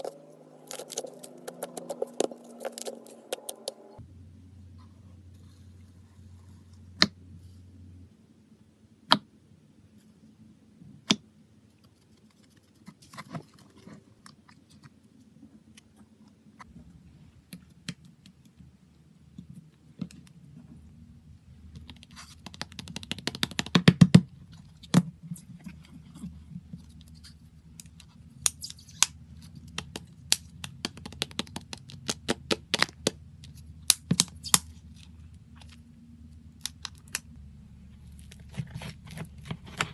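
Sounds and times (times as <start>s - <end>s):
slime clicking and crackling: 27.9s - 35.8s, 36.6s - 37.3s.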